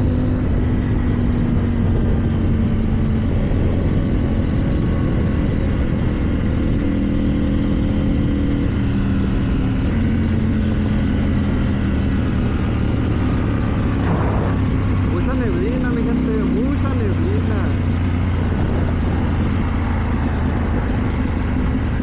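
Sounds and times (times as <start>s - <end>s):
motorcycle engine cruising: 0.0s - 22.0s
wind and road noise: 0.0s - 22.0s.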